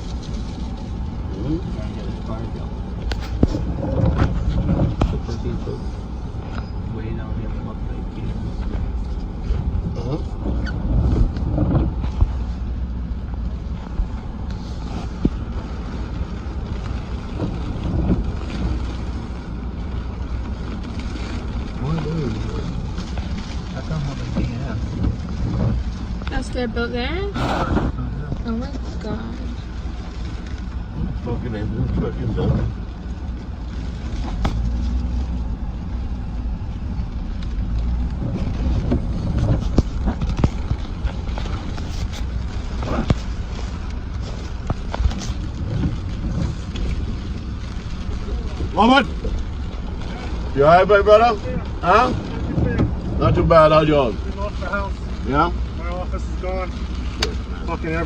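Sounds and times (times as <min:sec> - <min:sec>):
vehicle rumbling: 0:00.0 - 0:58.0
wind on microphone: 0:02.6 - 0:06.9, 0:30.8 - 0:50.7.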